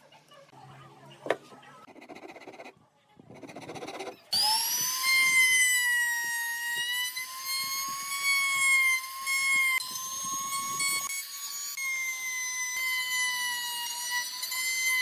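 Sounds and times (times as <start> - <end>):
power tool motor whining: 3.8 - 15.0.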